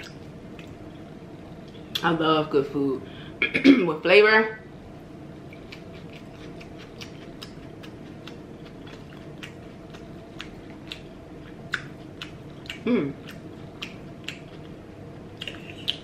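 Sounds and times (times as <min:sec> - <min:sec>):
faint steady hum: 0:00.0 - 0:16.0
person chewing food: 0:05.4 - 0:16.0.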